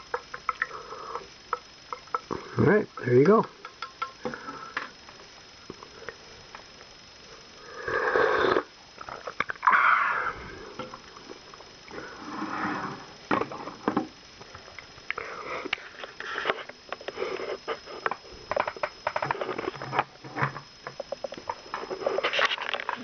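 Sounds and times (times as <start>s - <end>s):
short breathy hiss: 7.6s - 8.8s.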